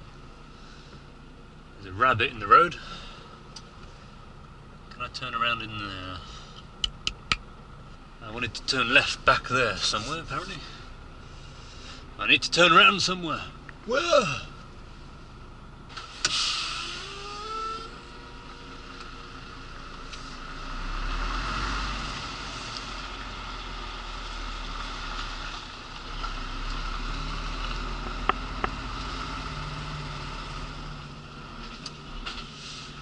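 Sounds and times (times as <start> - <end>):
lorry diesel engine running: 0.0 - 33.0
sharp click: 6.8 - 7.4
short air hiss: 16.0 - 17.0.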